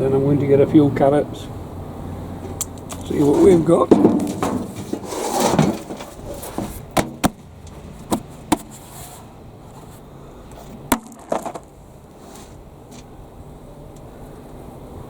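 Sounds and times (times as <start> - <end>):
sharp knocks: 2.4 - 7.4.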